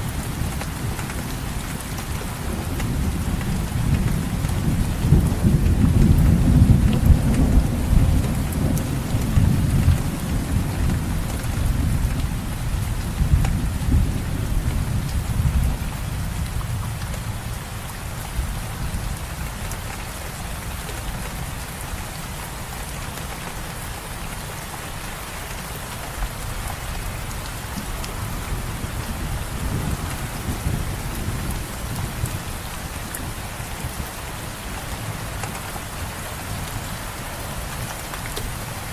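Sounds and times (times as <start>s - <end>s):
low rumble of thunder: 0.0s - 19.7s, 26.3s - 37.0s
steady rain falling: 0.0s - 38.9s.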